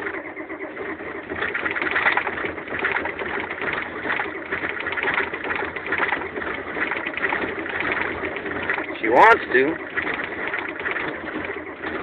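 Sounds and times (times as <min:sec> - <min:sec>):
diesel engine cranking: 0:00.0 - 0:12.0.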